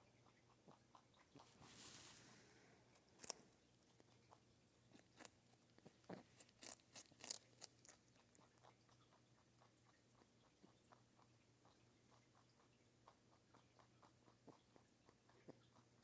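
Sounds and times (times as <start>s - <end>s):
carrot crunching: 0.4s - 9.6s.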